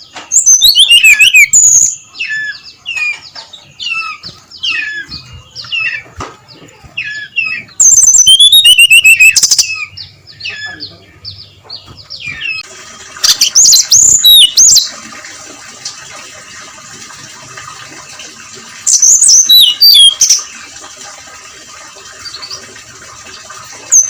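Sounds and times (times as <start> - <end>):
bird singing high whistles: 0.4 - 2.6, 7.0 - 9.9, 13.2 - 14.9, 18.9 - 20.4.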